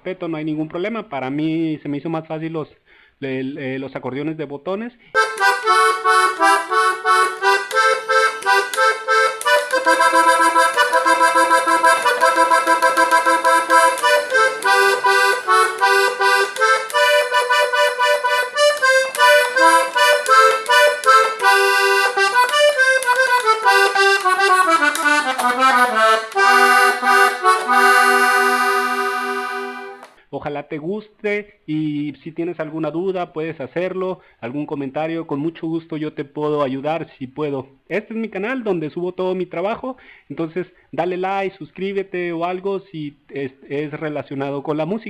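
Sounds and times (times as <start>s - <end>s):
button accordion lively melody: 5.2s - 30.2s.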